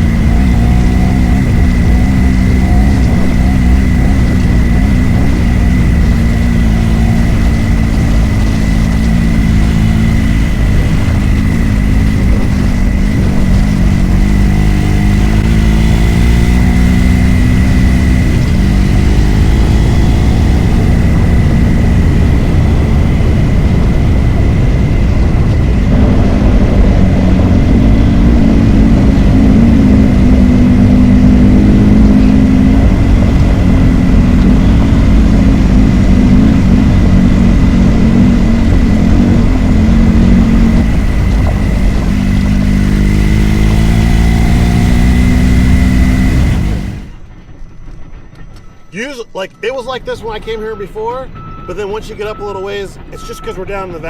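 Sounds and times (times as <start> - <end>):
wind rush on microphone: 0.0 - 47.2
motorcycle engine running: 0.0 - 47.6
thin high whine: 0.0 - 54.0.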